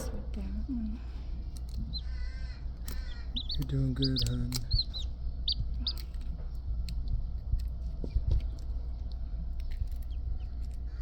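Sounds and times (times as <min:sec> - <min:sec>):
steady low rumble: 0:00.0 - 0:11.0
chicks peeping: 0:01.6 - 0:06.6.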